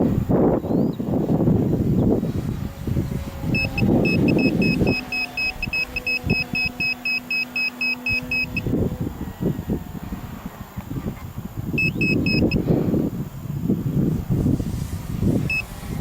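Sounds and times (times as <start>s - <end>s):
wind noise on microphone: 0.0s - 16.0s
rapid electronic beeping: 3.6s - 8.7s, 11.8s - 12.6s.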